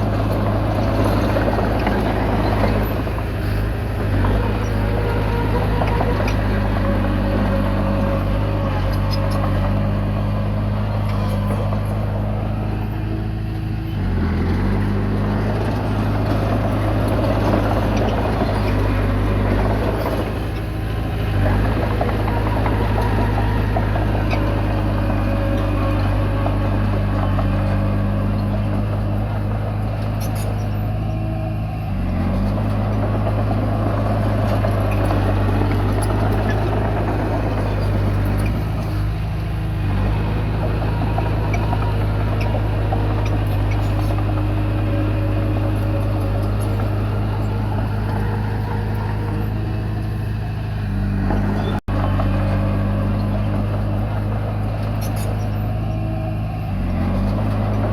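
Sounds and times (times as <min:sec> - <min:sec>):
bulldozer diesel engine running: 0:00.0 - 0:57.9
rattling clatter: 0:32.0 - 0:56.0.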